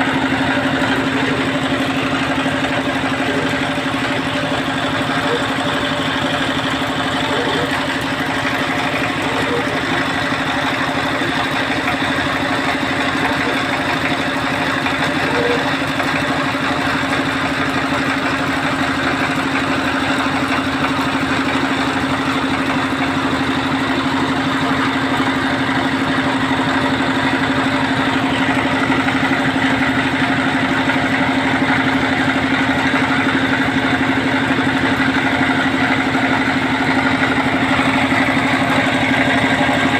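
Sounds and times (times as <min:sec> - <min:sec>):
small engine running steadily: 0:00.0 - 0:39.9.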